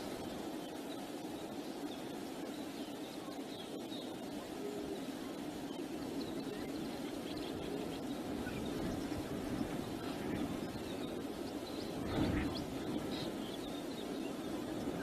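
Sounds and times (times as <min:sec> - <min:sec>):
faint bird chirps: 0:00.0 - 0:15.0
wind noise: 0:04.2 - 0:15.0.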